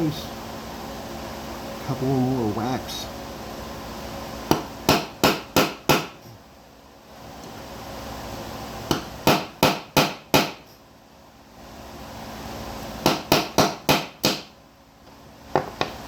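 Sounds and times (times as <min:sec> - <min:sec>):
hammer strikes on metal pin: 0:04.5 - 0:06.2, 0:08.9 - 0:10.7, 0:13.0 - 0:14.5.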